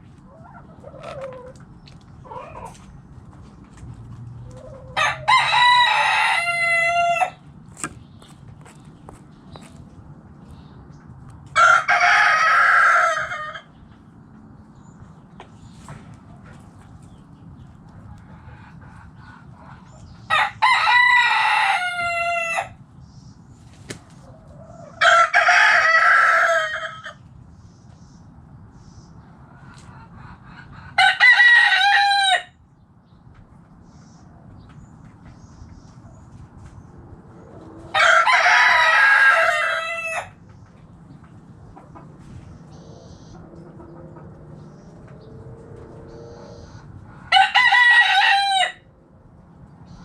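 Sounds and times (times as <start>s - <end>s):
rooster crowing: 4.8s - 7.4s, 11.6s - 13.7s, 20.3s - 22.8s, 24.8s - 27.2s, 31.0s - 32.6s, 37.9s - 40.4s, 47.3s - 48.9s.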